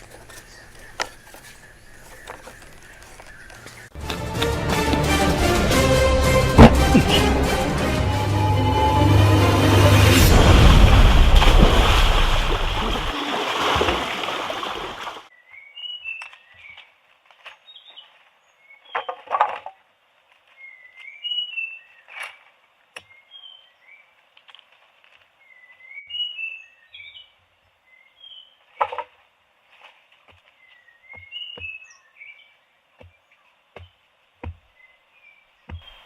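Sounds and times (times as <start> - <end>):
small birds chirping: 0.0 - 4.0, 30.3 - 36.0
sharp knocks: 6.4 - 7.3.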